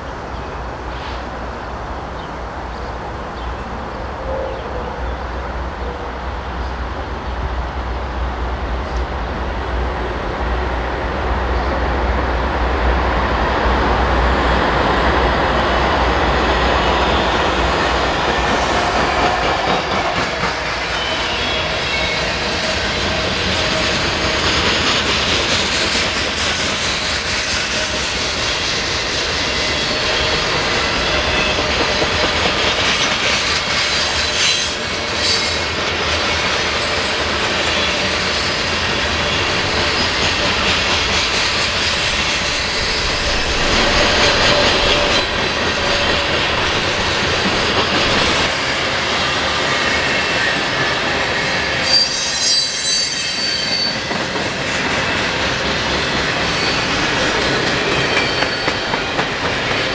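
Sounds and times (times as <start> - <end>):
train rumbling past: 0.0 - 59.9
clickety-clack over rail joints: 17.0 - 48.8, 54.0 - 59.9
wheel squeal: 51.8 - 54.1.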